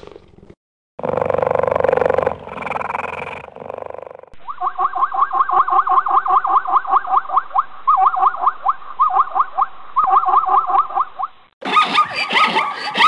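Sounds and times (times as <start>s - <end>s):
zebra yipping: 4.4s - 13.0s.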